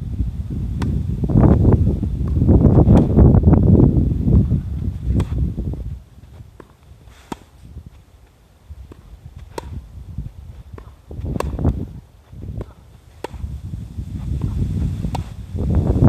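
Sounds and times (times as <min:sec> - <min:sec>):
wind rumble on microphone: 0:00.0 - 0:16.0
tennis racket hitting ball: 0:02.2 - 0:03.2, 0:05.1 - 0:05.6, 0:06.5 - 0:07.6, 0:08.8 - 0:09.9, 0:10.5 - 0:11.9, 0:12.5 - 0:13.6, 0:14.2 - 0:15.4.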